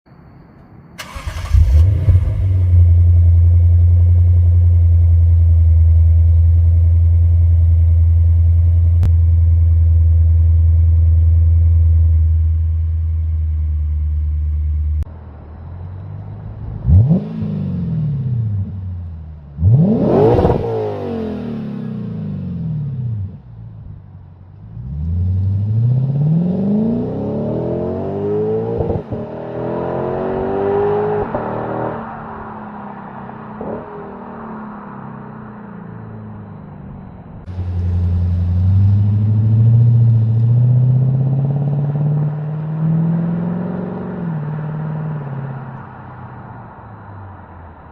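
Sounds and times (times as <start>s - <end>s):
car engine cranking: 1.0s - 3.4s
engine revving: 1.0s - 12.5s, 16.8s - 18.8s, 19.6s - 23.4s, 24.8s - 32.0s, 37.5s - 45.5s
engine accelerating: 1.0s - 15.1s, 36.6s - 45.9s.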